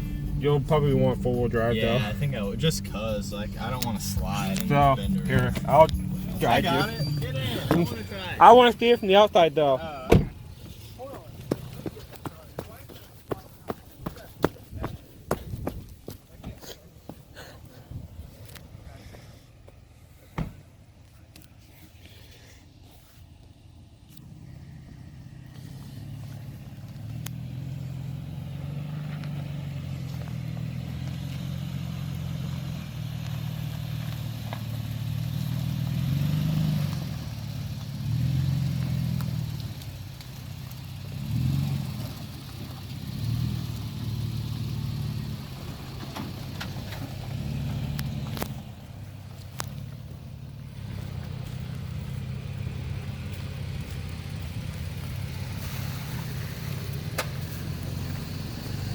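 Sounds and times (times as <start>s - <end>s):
pickup engine revving: 0.0s - 16.7s, 24.1s - 58.9s.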